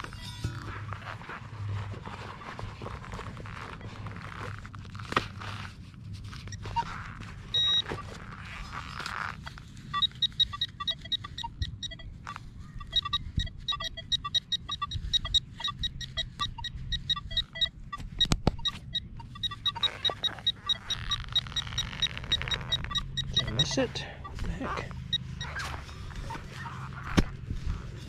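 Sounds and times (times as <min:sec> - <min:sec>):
metal detector beeps: 0:06.4 - 0:27.2.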